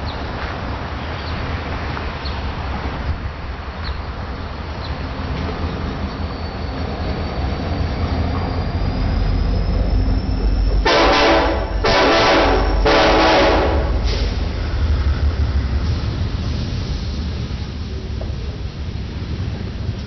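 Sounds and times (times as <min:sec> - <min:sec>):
train rumbling past: 0:00.0 - 0:20.0
diesel locomotive horn blasts: 0:10.8 - 0:14.4.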